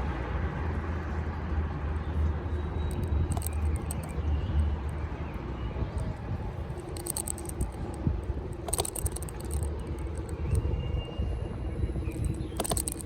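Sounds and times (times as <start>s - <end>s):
road rumble: 0.0s - 13.0s
wind: 0.0s - 13.0s
camera mount rattling: 2.9s - 4.2s, 6.8s - 10.7s, 12.1s - 13.0s.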